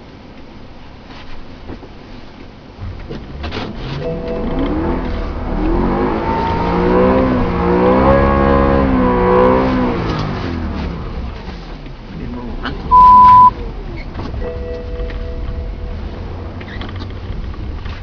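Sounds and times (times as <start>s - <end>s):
car engine revving: 2.8s - 18.0s.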